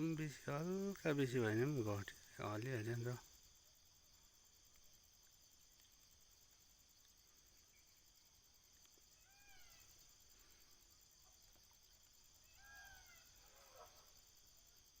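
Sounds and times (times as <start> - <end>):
faint insect chirring: 0.0 - 15.0
rising and falling animal calls: 12.4 - 14.1.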